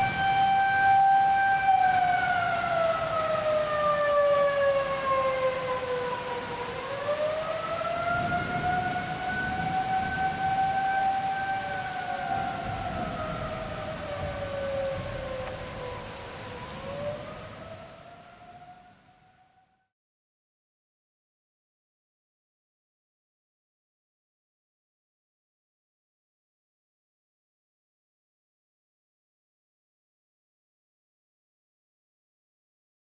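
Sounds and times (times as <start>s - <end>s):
steady rain: 0.0s - 19.7s
warning siren wailing: 0.0s - 19.9s.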